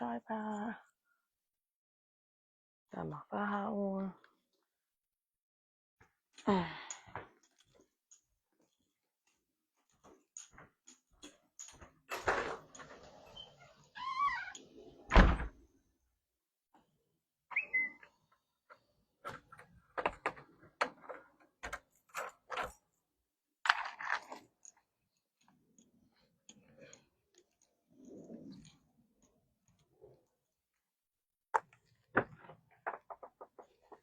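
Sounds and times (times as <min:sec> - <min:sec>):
knocks and clicks from handling: 0:18.7 - 0:22.8.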